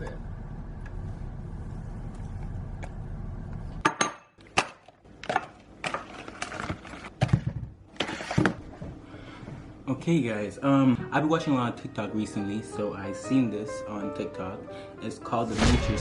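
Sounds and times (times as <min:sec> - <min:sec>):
steady low rumble: 0:00.0 - 0:03.8.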